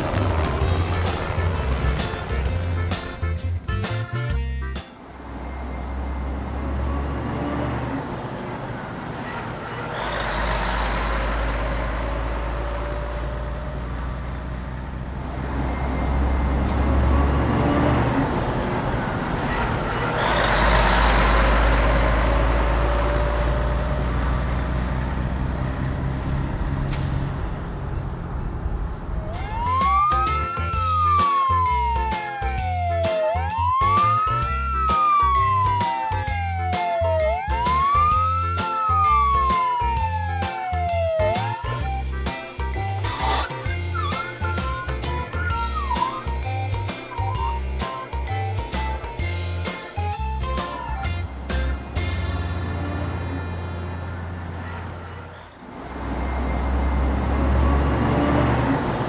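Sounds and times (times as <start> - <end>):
toy siren wailing: 29.3 - 41.9, 43.0 - 51.2
toy rumbling engine noise: 42.8 - 52.2.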